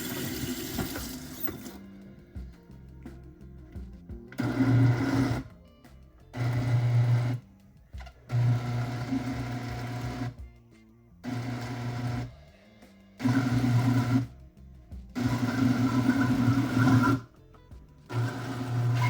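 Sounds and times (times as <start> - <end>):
blender motor hum: 0.0 - 1.8, 4.4 - 5.5, 6.4 - 7.4, 8.3 - 10.4, 11.2 - 12.3, 13.2 - 14.3, 15.2 - 17.3, 18.1 - 19.0.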